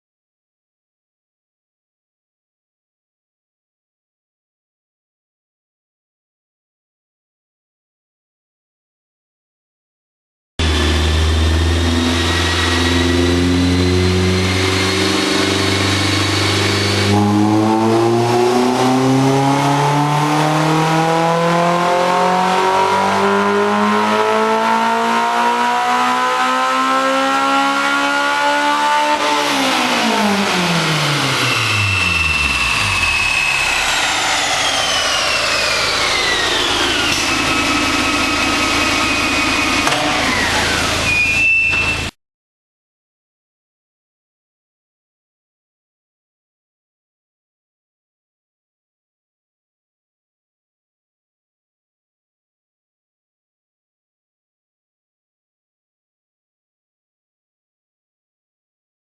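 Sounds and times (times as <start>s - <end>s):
car engine revving on dyno: 10.6s - 42.1s.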